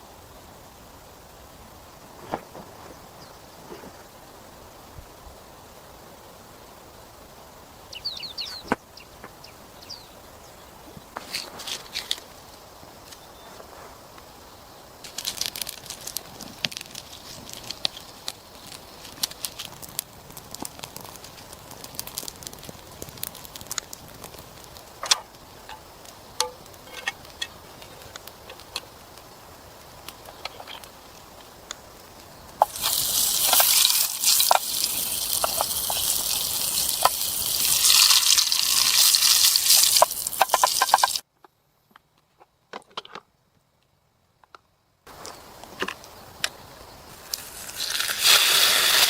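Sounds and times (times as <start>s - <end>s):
crackles and pops: 0.0s - 10.1s, 10.8s - 42.3s, 43.0s - 49.0s
food sizzling in a pan: 32.3s - 41.2s, 47.1s - 49.0s.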